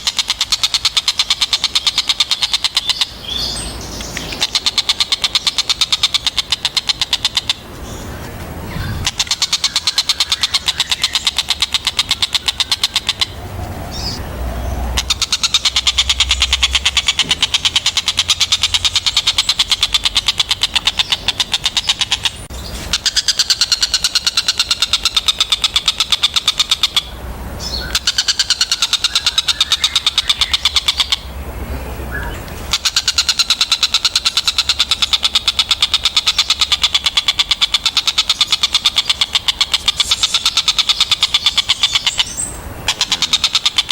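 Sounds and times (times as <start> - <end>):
kingfisher rattling chatter: 32.7 - 43.9.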